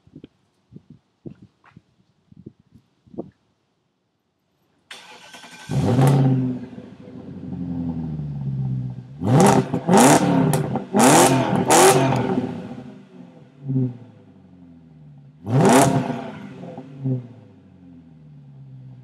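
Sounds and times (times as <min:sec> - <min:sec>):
car engine starting and revving: 0:04.9 - 0:19.0.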